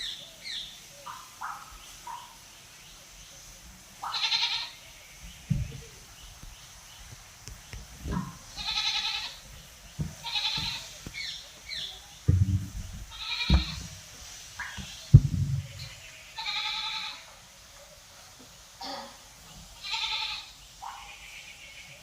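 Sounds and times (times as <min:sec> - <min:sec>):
goat bleating: 0:04.0 - 0:04.8, 0:08.5 - 0:09.4, 0:10.2 - 0:11.0, 0:13.1 - 0:13.9, 0:15.4 - 0:17.3, 0:19.8 - 0:21.9
dull low thumps: 0:12.3 - 0:14.0, 0:15.1 - 0:15.9.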